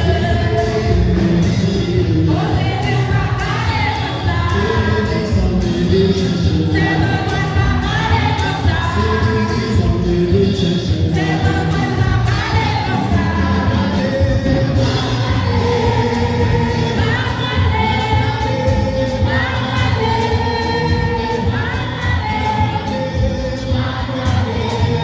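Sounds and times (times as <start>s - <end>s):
instrumental accompaniment with heavy bass: 0.0s - 25.0s
choir singing a hymn: 11.2s - 25.0s.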